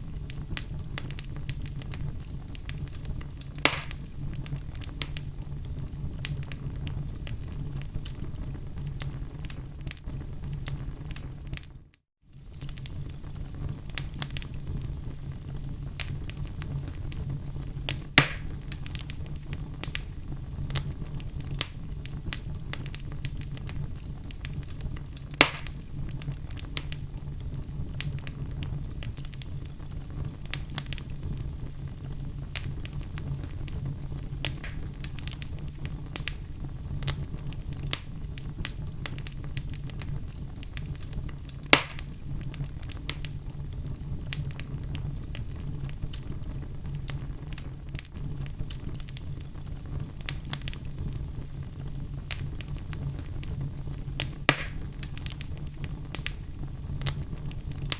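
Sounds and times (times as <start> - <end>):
fireplace flame rumble: 0.0 - 57.9
logs crackling: 0.1 - 11.7, 12.4 - 57.9
loud wood pops: 3.6 - 4.1, 18.2 - 18.5, 25.4 - 25.8, 34.5 - 34.9, 41.8 - 42.1, 54.5 - 54.8.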